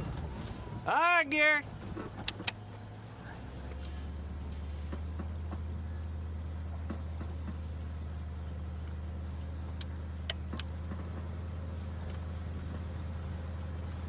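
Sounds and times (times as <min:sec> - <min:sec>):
vehicle engine idling: 0:00.0 - 0:14.0
sharp clicks: 0:02.1 - 0:02.7.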